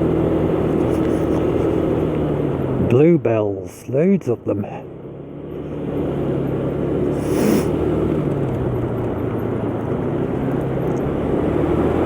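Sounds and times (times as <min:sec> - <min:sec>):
motor scooter engine running: 0:00.0 - 0:02.1
brief hiss: 0:07.2 - 0:07.8.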